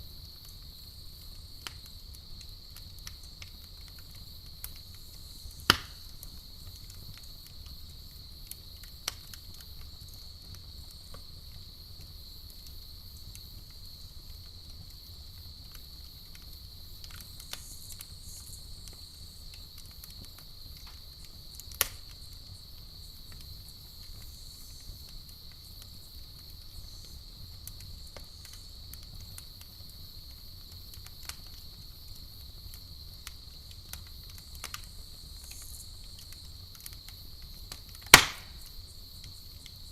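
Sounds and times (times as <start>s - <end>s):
campfire popping and crackling: 0.0s - 39.9s
crickets chirping: 0.0s - 39.9s.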